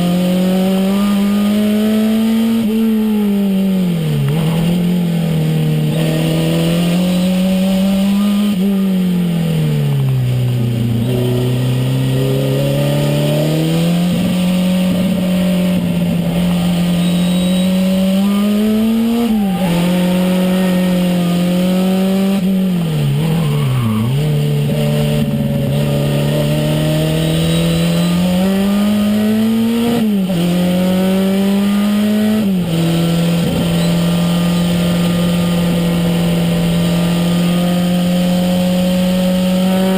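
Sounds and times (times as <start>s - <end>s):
car engine from inside cabin: 9.9s - 23.4s, 24.2s - 39.9s.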